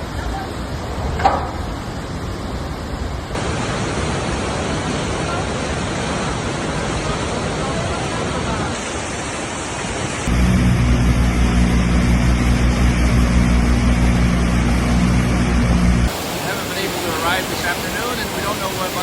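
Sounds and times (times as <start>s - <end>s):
river water rushing: 0.0s - 10.3s, 16.1s - 19.0s
low engine hum: 10.2s - 19.0s.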